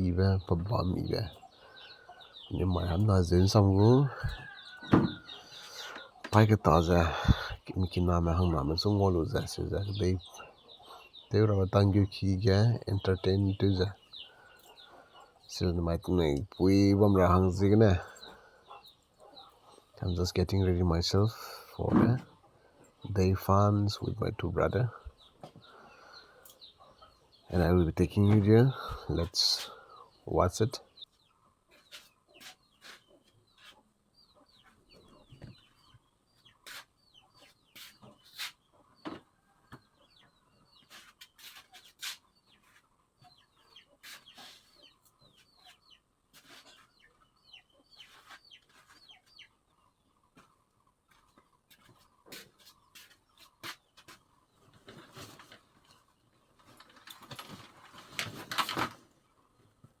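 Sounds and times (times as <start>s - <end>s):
chickens clucking: 0.0s - 60.0s
rustling: 52.6s - 59.2s.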